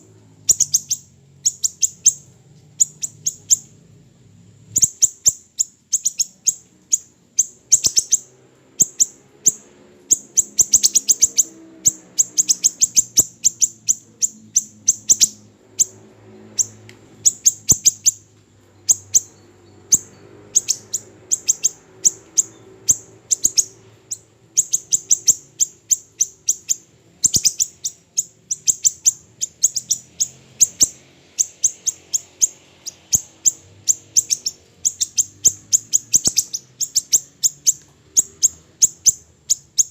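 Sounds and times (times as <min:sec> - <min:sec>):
small songbird sharp ticking calls: 0:00.0 - 0:03.8, 0:04.7 - 0:39.9.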